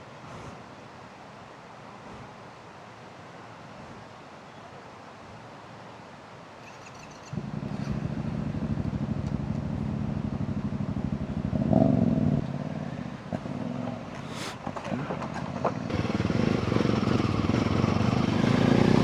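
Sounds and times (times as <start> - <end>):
motorcycle engine idling and revving: 7.3 - 19.0.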